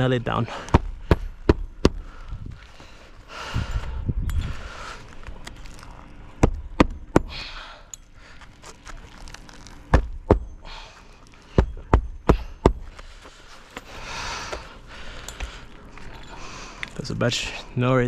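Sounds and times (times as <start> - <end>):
shingles rustling: 4.7 - 6.8, 8.2 - 11.7.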